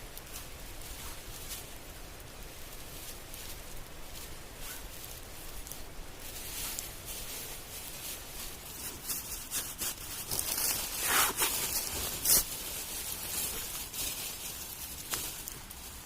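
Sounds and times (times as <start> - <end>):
rustling and rubbing: 0.0 - 16.0
sharp scrapes: 8.8 - 12.6.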